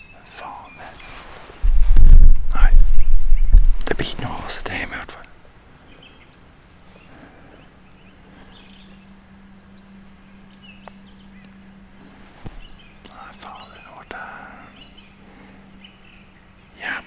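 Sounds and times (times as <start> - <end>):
faint bird chirps: 0.0 - 1.4, 2.6 - 17.0
low steady hum: 0.0 - 17.0.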